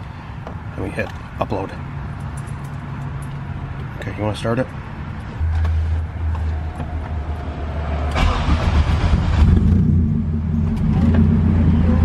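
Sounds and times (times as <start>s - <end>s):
car engine starting and idling: 5.2s - 12.0s.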